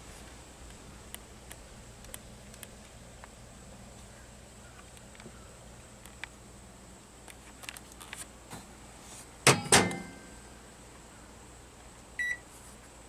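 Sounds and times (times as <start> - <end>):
microwave door shutting: 9.5 - 10.2.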